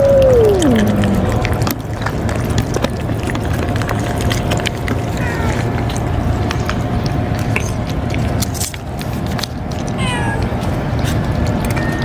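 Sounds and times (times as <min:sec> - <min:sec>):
cats meowing: 0:00.0 - 0:01.5, 0:05.2 - 0:05.9, 0:10.0 - 0:10.7
steady low rumble: 0:00.0 - 0:01.8.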